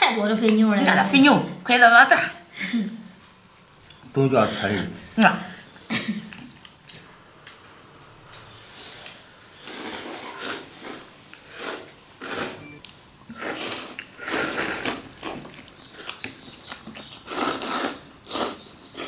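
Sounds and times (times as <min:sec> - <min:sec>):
people slurping noodles: 0:08.8 - 0:12.7, 0:13.3 - 0:15.4, 0:17.2 - 0:19.0.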